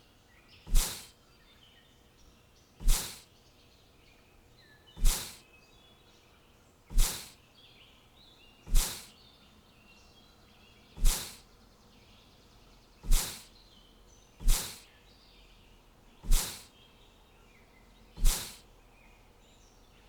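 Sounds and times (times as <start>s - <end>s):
small birds chirping: 0.0s - 20.0s
sharp whooshing sound effects: 0.7s - 1.1s, 2.8s - 3.2s, 5.0s - 5.4s, 6.9s - 7.3s, 8.7s - 9.1s, 11.0s - 11.4s, 13.0s - 13.5s, 14.4s - 14.8s, 16.2s - 16.7s, 18.2s - 18.6s.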